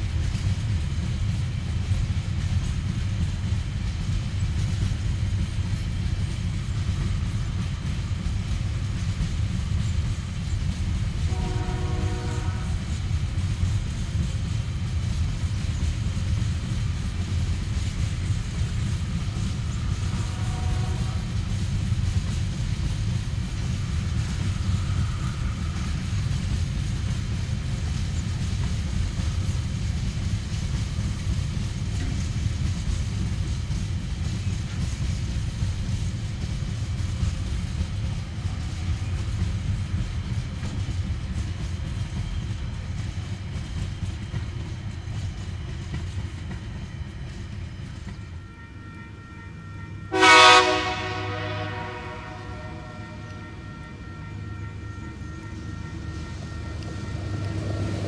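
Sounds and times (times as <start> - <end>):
freight train wagons rumbling past: 0.0 - 58.0.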